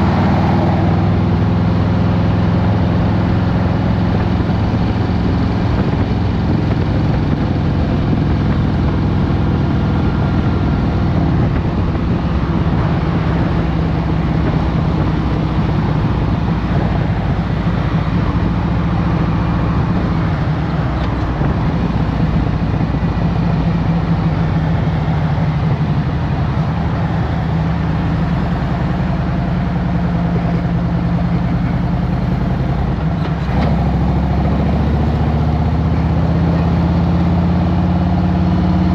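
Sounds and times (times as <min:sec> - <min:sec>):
constant rushing noise: 0:00.0 - 0:38.9
motorcycle engine running: 0:00.0 - 0:38.9.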